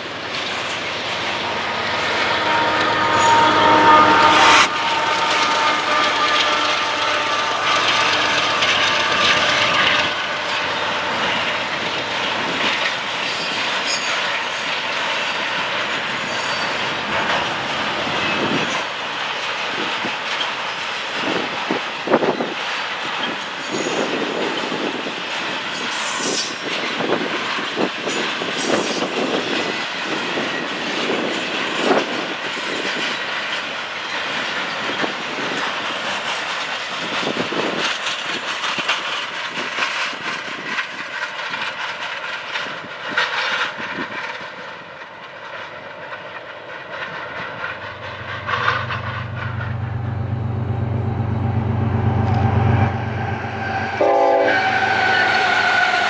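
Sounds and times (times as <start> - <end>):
diesel locomotive engine passing: 0.0 - 56.0
train wheels rumbling on rail: 0.0 - 56.0.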